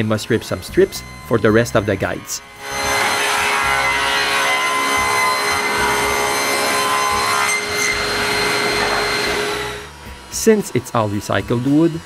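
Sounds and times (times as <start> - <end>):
power saw ripping wood: 2.4 - 9.9.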